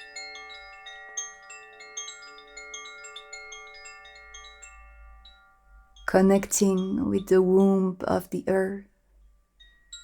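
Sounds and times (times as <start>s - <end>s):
chimes ringing: 0.0s - 7.2s.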